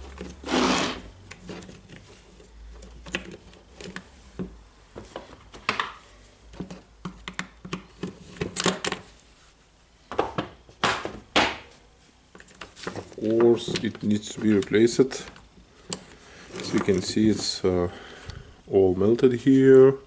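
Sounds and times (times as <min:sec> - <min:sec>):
scrape: 0:00.4 - 0:01.0.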